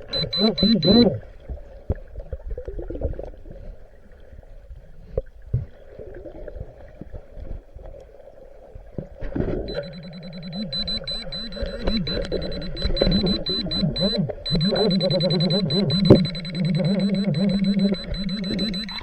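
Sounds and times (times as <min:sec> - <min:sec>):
muffled water sloshing underwater: 0:00.0 - 0:19.0
high-pitched electronic beep: 0:00.1 - 0:01.1, 0:09.7 - 0:19.0.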